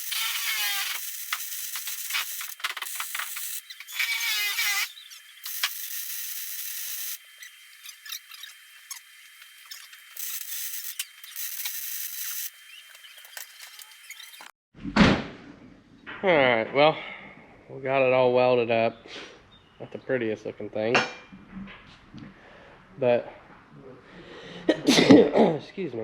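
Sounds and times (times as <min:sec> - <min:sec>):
welding arc crackling: 0:00.0 - 0:14.5.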